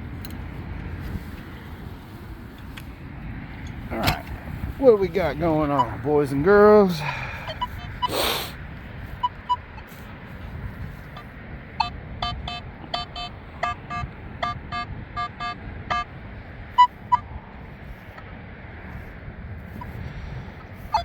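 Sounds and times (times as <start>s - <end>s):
wind rush: 0.0s - 21.0s
metal detector beeping: 5.6s - 6.1s, 7.4s - 8.2s, 9.2s - 9.9s, 11.0s - 16.1s, 16.8s - 17.3s.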